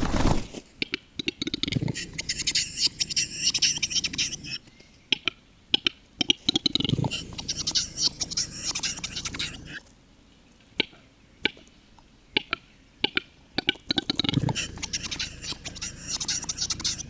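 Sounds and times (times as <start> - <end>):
bird hissing scraping phrase: 7.0 - 9.8, 14.3 - 17.0.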